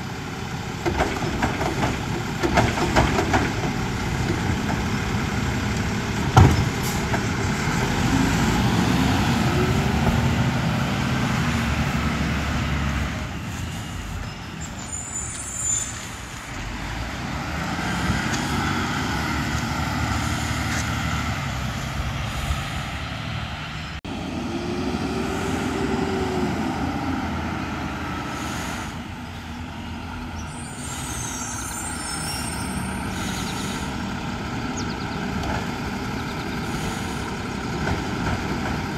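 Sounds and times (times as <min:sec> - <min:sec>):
truck engine revving: 0:00.0 - 0:14.2, 0:16.0 - 0:38.9
high squeals: 0:13.5 - 0:16.6, 0:30.4 - 0:34.0.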